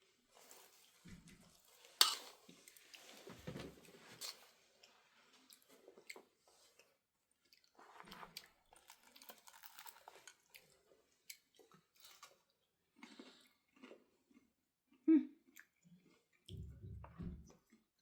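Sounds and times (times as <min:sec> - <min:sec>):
soft chewing: 0:00.0 - 0:18.0.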